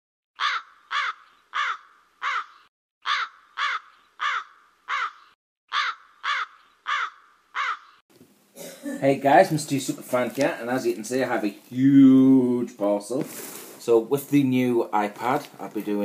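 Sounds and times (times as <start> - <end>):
bird cawing: 0.4 - 8.0.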